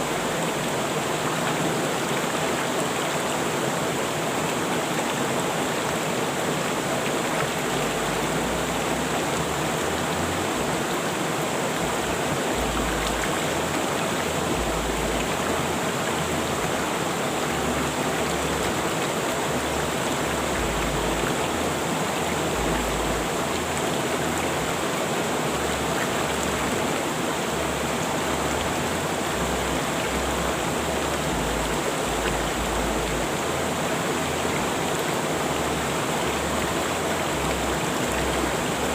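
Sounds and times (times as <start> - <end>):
rushing river water: 0.0 - 38.9.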